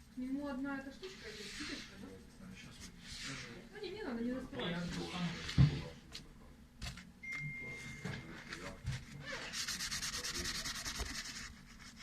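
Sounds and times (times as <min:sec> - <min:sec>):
rapid scrubbing strokes: 0:00.0 - 0:03.6.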